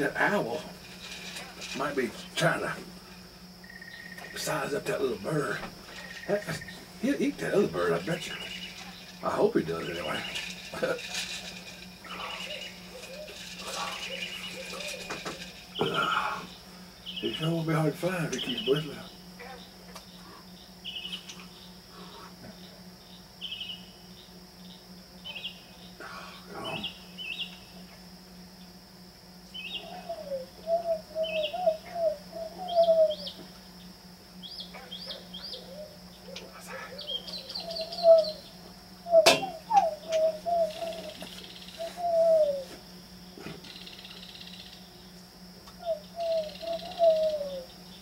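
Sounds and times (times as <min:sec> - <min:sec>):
crickets trilling: 0:00.0 - 0:48.0
bird whistling and chirping: 0:29.6 - 0:33.4, 0:37.0 - 0:42.8, 0:45.8 - 0:47.7.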